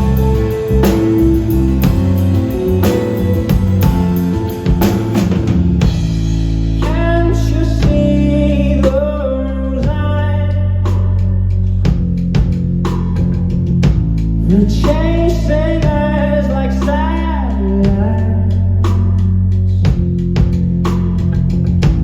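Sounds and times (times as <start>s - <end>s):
person singing: 0.0s - 5.3s, 6.8s - 11.1s
guitar chords: 0.0s - 6.8s
drum kit beating: 0.0s - 22.0s.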